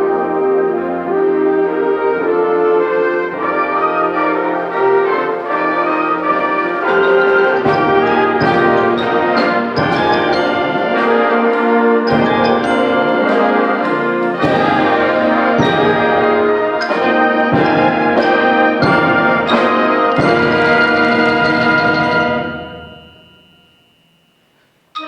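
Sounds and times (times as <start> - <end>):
symphonic band playing: 0.0 - 23.7
brass chords: 0.0 - 24.2
percussion accents: 5.8 - 25.0.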